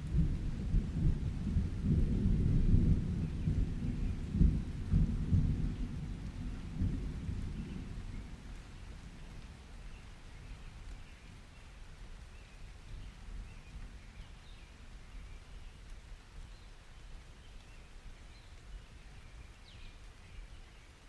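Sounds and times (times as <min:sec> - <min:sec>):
low thunder rumble: 0:00.0 - 0:09.6
steady rain hiss: 0:00.0 - 0:21.0.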